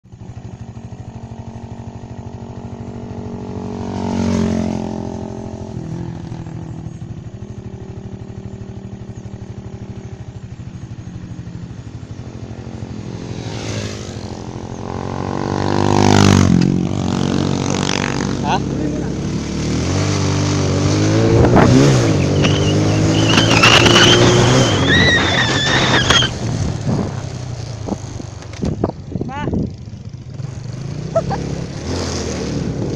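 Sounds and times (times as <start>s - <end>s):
motorcycle engine running: 0.0s - 32.9s
vehicle passing by: 11.8s - 28.0s.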